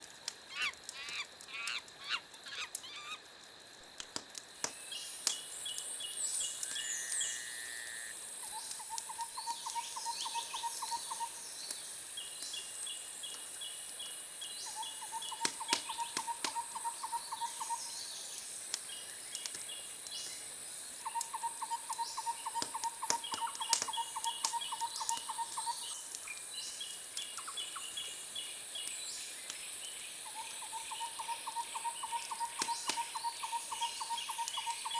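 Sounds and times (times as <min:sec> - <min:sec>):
wood fire crackling and popping: 0:00.0 - 0:02.9, 0:03.8 - 0:06.8, 0:18.3 - 0:20.4, 0:21.2 - 0:27.3
steady high hiss: 0:00.0 - 0:34.9.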